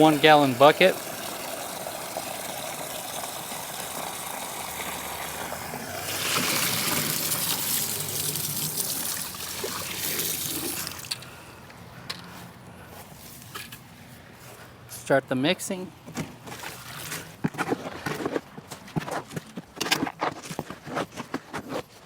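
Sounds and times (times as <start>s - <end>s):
water poured into concrete mix: 0.0s - 11.3s.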